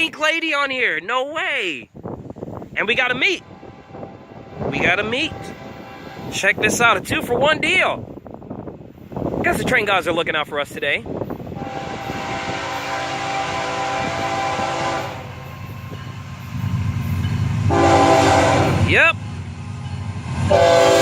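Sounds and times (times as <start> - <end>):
locomotive engine rumble: 1.9 - 21.0
locomotive air horn blasts: 3.4 - 6.4, 11.6 - 15.8, 17.7 - 18.9, 20.4 - 21.0.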